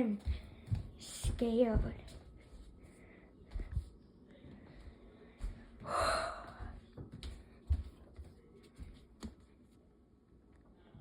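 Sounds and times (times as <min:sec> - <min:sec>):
person gasping: 0:05.8 - 0:06.8.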